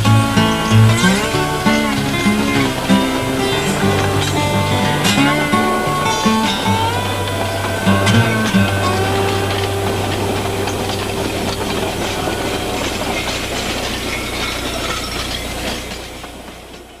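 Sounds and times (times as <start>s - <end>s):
rail clatter: 0.0s - 17.0s
train rumbling: 0.0s - 17.0s.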